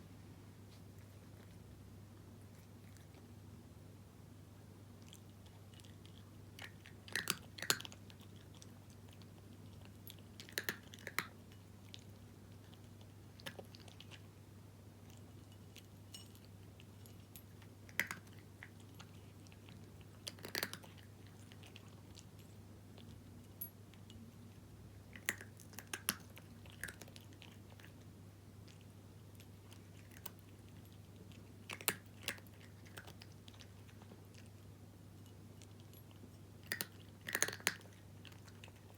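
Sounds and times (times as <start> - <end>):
faint low hum: 0.0 - 38.9
cat crunching dry kibble: 5.0 - 14.3, 15.0 - 24.1, 25.0 - 38.9.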